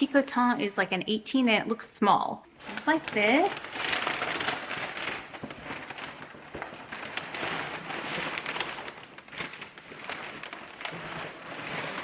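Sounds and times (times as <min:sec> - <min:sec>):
paper rustling and crinkling: 0:02.6 - 0:12.0.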